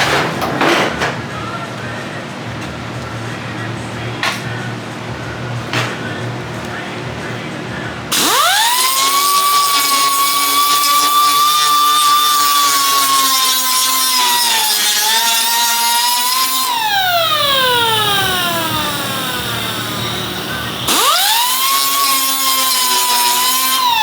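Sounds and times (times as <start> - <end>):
angle grinder whining: 8.1 - 24.0.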